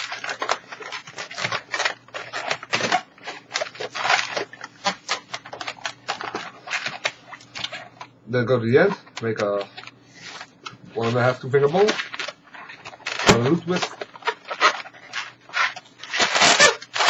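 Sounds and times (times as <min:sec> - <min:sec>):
rubbery balloon squeaks: 0:00.0 - 0:08.1, 0:08.8 - 0:17.0.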